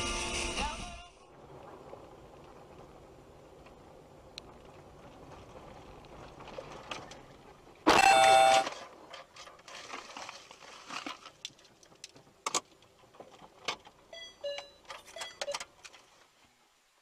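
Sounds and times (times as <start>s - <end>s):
car horn blast: 7.9s - 8.7s
short beeping tones: 7.9s - 8.7s
sharp clicks and knocks: 11.4s - 14.0s.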